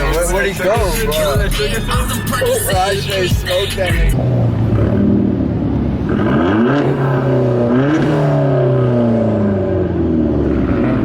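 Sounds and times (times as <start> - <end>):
car engine accelerating hard: 0.0 - 11.0.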